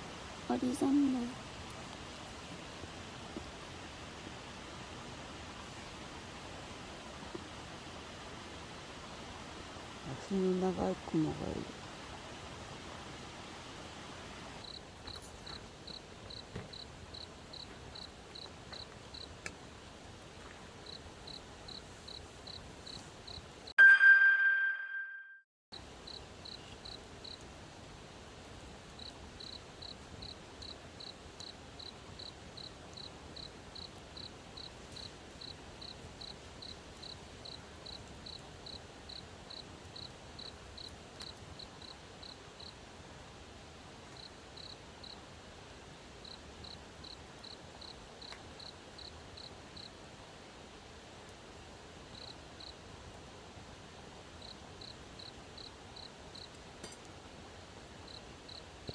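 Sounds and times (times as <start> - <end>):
soft steady hiss: 0.0 - 23.8, 25.8 - 58.9
cricket chirping: 14.6 - 19.4, 20.4 - 23.7, 25.8 - 42.8, 44.1 - 45.2, 46.2 - 49.9, 52.1 - 52.8, 54.4 - 56.6, 58.0 - 58.9.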